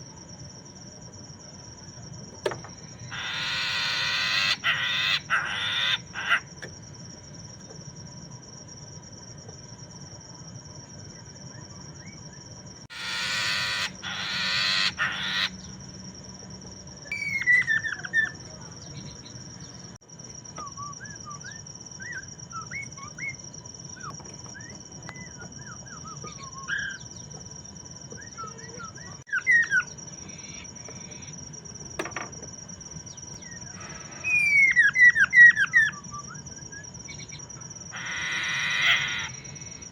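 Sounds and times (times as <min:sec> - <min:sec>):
bird harsh rasping calls: 0:03.0 - 0:06.5, 0:12.9 - 0:15.7, 0:37.9 - 0:39.4
bird whistled notes: 0:13.0 - 0:15.6, 0:17.1 - 0:18.4.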